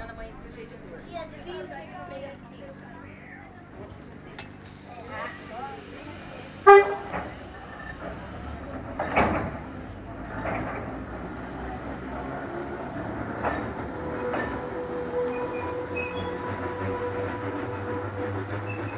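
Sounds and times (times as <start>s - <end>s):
train car rumbling on rails: 0.0s - 18.9s.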